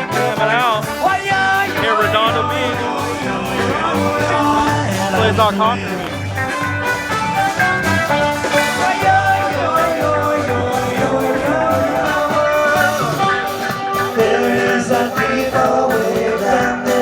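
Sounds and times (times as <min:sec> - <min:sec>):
live rock band playing: 0:00.0 - 0:17.0
person singing: 0:00.2 - 0:06.4, 0:08.4 - 0:17.0.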